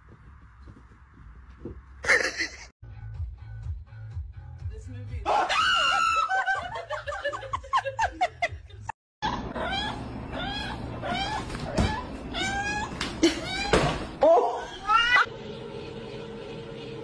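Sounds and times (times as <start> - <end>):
woman laughing: 2.0 - 2.7, 5.3 - 9.0, 13.2 - 13.7
cat yowling: 9.5 - 15.3.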